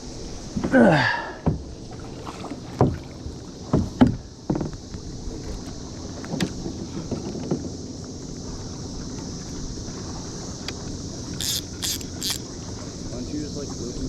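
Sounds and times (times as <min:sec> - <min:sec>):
cicada chorus buzzing: 0:03.3 - 0:14.0.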